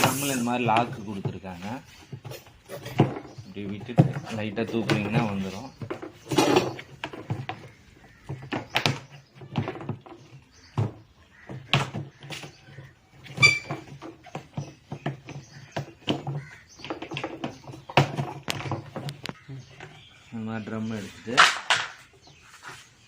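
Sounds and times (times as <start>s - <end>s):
short squeak: 13.3s - 13.8s.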